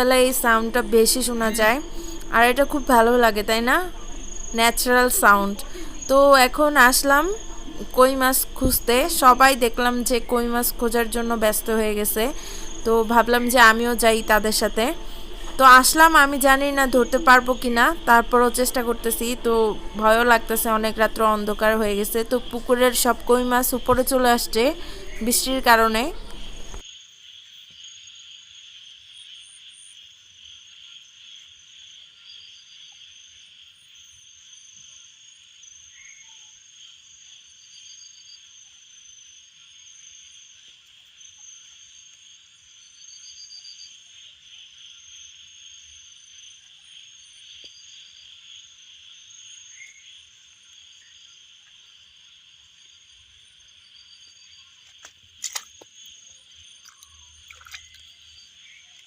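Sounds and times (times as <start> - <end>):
pulsed chirping calls: 0.0 - 26.8
high insect trill: 0.0 - 59.0.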